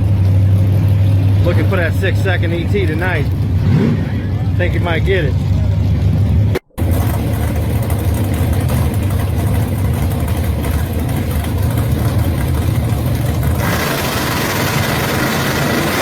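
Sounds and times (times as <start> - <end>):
drag car engine idling: 0.0 - 16.0.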